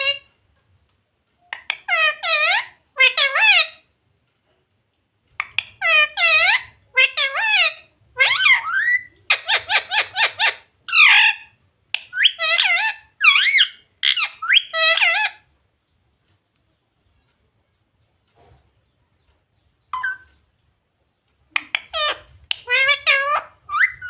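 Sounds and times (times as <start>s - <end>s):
parrot squawking and chattering: 0.0s - 0.3s, 1.4s - 3.9s, 5.3s - 15.5s, 19.8s - 20.4s, 21.4s - 24.0s.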